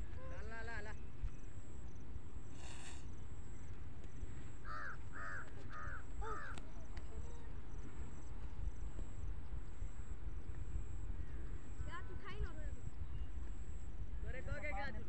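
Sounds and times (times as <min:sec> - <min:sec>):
wind rumble on microphone: 0:03.1 - 0:15.0
bird calling: 0:04.6 - 0:07.6.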